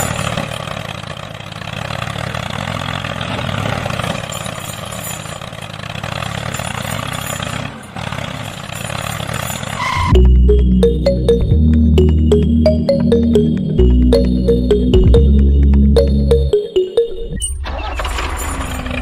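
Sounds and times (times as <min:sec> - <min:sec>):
engine running: 0:10.1 - 0:16.6.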